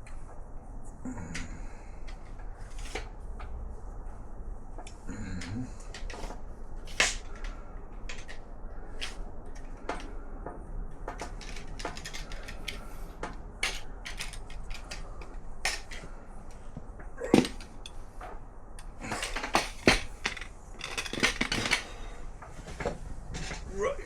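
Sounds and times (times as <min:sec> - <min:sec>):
metal tools clinking and knocking: 0:05.8 - 0:10.1, 0:11.1 - 0:16.6, 0:17.3 - 0:22.2.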